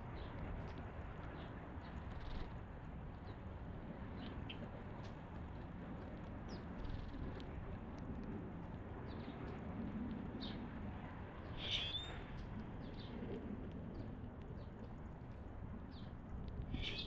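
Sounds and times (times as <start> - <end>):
steady low rumble: 0.0 - 17.0
songbirds chirping: 11.5 - 12.2, 15.8 - 17.0.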